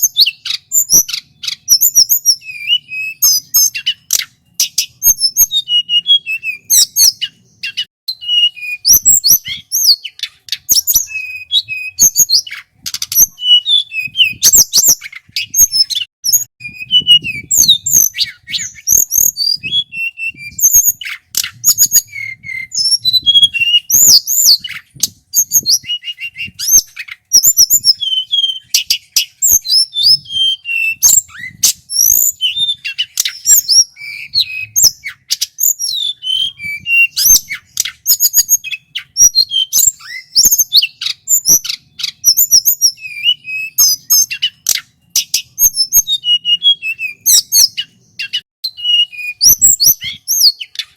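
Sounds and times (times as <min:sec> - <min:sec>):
bird singing chirps and whistles: 0:00.0 - 0:50.9.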